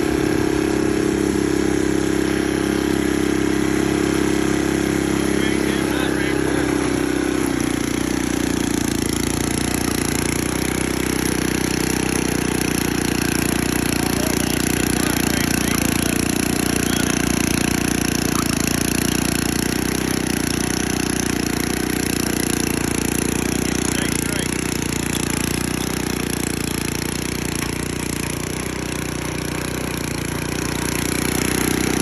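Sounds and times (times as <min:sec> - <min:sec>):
tiller engine running: 0:00.0 - 0:32.0.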